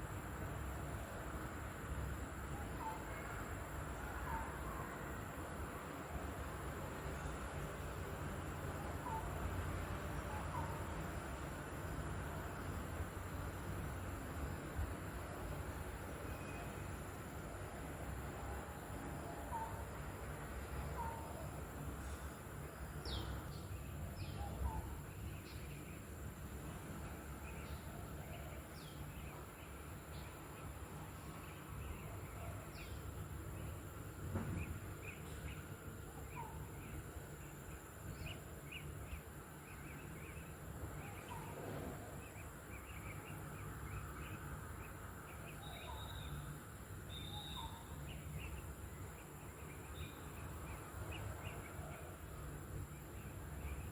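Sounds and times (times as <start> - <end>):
birds chirping: 8.3 - 12.8, 15.5 - 53.9
bird whistled notes: 45.6 - 46.5, 47.1 - 48.0.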